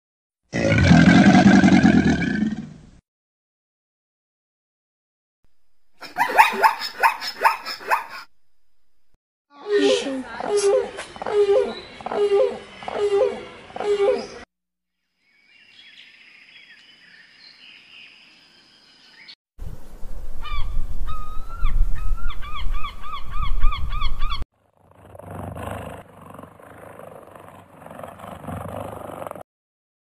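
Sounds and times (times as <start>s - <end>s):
bird calls: 6.0s - 8.3s, 9.8s - 14.4s, 20.4s - 24.4s
low wind rumble: 19.6s - 24.4s.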